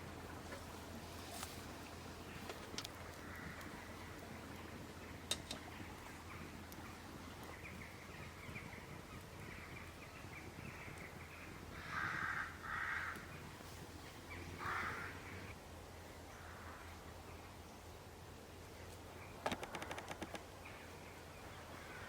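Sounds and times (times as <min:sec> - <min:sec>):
campfire crackling: 0:00.0 - 0:15.8, 0:18.0 - 0:21.0
crow cawing: 0:03.2 - 0:03.7, 0:11.8 - 0:13.3, 0:14.6 - 0:15.3
sharp snap: 0:19.4 - 0:20.4.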